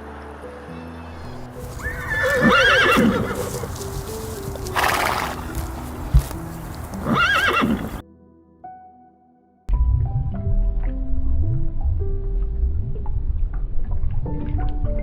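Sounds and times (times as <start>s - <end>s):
soft background music: 0.0s - 15.0s
horse whinnying: 1.6s - 3.8s, 4.7s - 5.5s, 7.0s - 8.0s.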